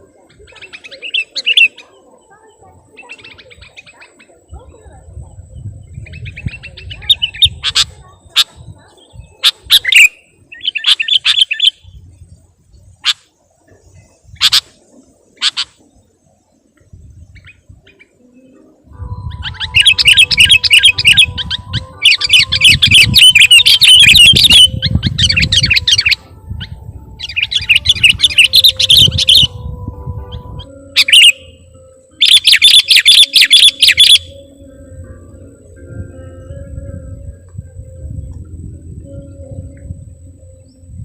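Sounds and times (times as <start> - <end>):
bulbul chattering song: 0.0 - 41.0
low rumble: 34.4 - 41.0.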